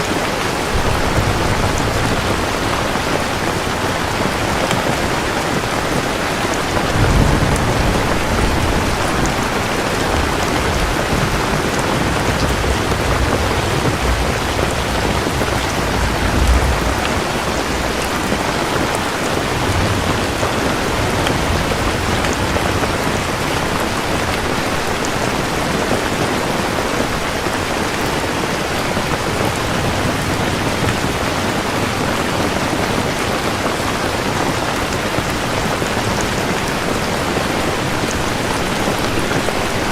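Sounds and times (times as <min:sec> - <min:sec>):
rain falling: 0:00.0 - 0:39.9
thunder rumbling: 0:00.0 - 0:39.9.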